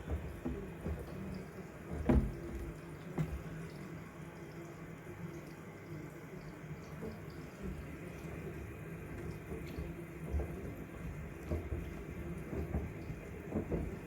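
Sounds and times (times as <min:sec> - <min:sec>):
soft thumps: 0:00.0 - 0:03.6
washing machine drum tumbling: 0:00.0 - 0:03.7, 0:07.5 - 0:14.0.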